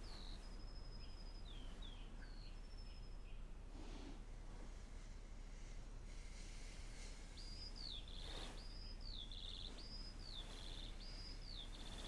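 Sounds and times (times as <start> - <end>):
songbird whistling and trilling: 0.0 - 3.4, 7.4 - 12.0.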